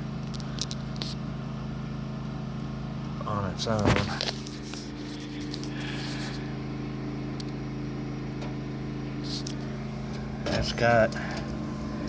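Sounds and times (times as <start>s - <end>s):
low hum: 3.4s - 12.0s
wood fire crackling and hissing: 3.6s - 6.6s, 9.1s - 10.4s.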